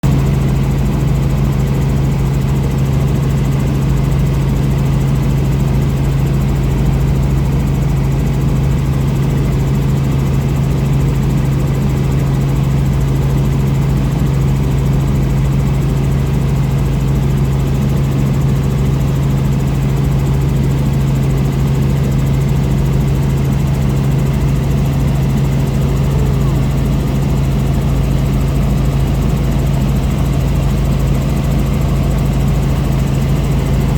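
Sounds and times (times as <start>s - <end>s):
helicopter running: 0.0s - 33.9s.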